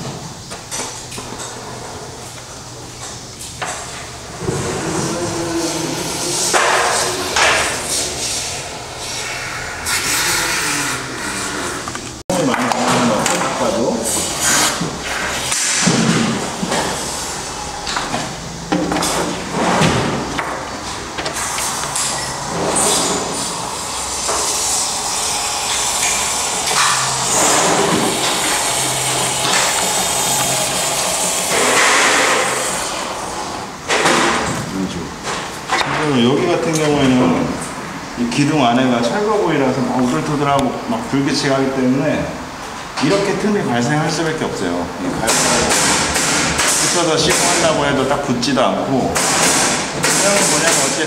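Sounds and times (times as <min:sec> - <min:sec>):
foam gun spraying hiss: 0:23.4 - 0:33.0.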